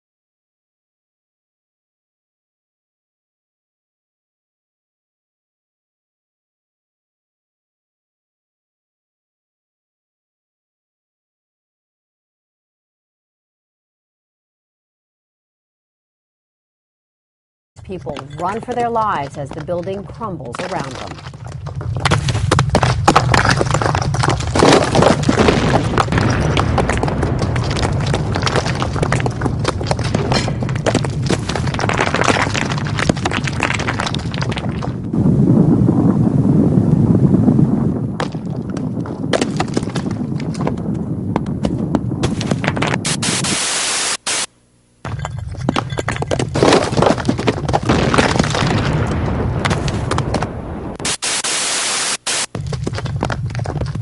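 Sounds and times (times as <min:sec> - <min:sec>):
objects rattling and clattering: 0:17.8 - 0:35.1, 0:45.1 - 0:48.7
deep earthquake rumble: 0:17.8 - 0:43.5, 0:45.1 - 0:51.2, 0:52.5 - 0:54.0
things breaking with cracks: 0:20.5 - 0:35.1, 0:38.2 - 0:41.5, 0:45.1 - 0:50.5, 0:52.5 - 0:54.0.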